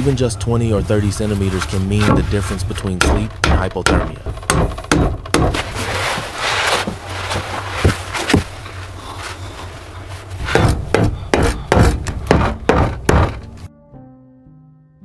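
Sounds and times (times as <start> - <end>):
soft string music: 0.0 - 4.6, 11.4 - 15.0
tool knocking on wood: 2.0 - 5.8, 10.4 - 13.7.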